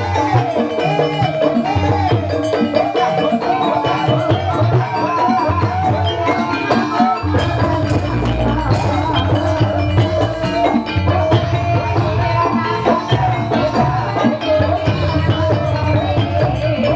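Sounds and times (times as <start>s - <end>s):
drums with steady beat: 0.0s - 16.9s
struck tuned percussion melody: 0.0s - 16.9s.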